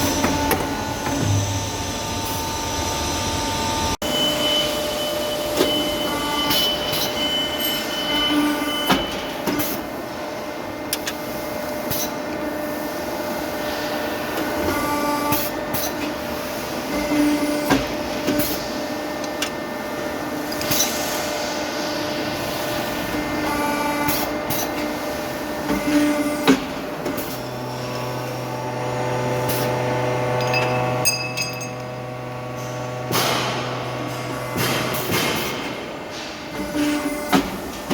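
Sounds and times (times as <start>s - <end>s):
machinery humming: 0.0s - 37.9s.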